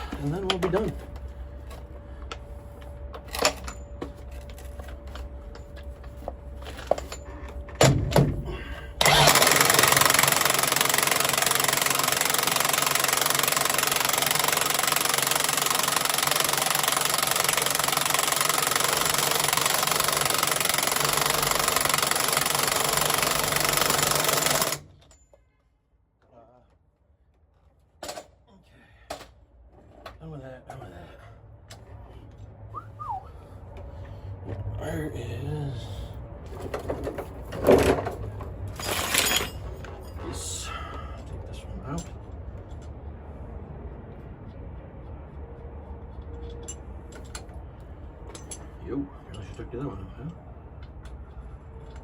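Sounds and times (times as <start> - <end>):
loud air tool noise: 9.0 - 24.9.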